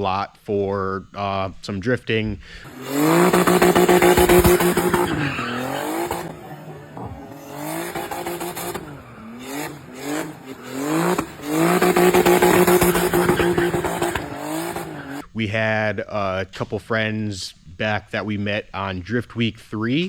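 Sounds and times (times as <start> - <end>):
car engine revving hard: 2.7 - 15.2.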